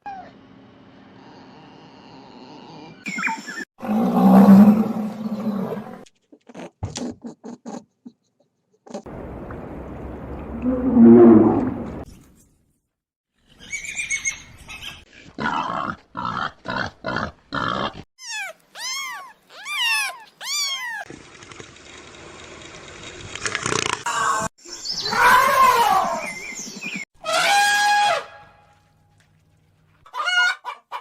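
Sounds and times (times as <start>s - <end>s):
rising and falling animal cries: 17.8s - 21.1s, 24.1s - 26.4s.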